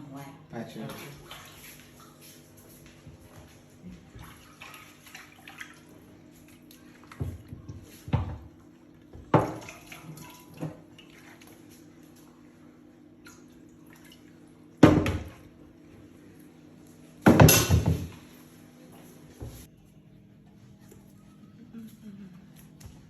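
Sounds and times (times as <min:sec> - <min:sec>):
water splashing: 0:00.8 - 0:02.6, 0:03.5 - 0:08.1, 0:09.3 - 0:12.5, 0:13.2 - 0:15.6.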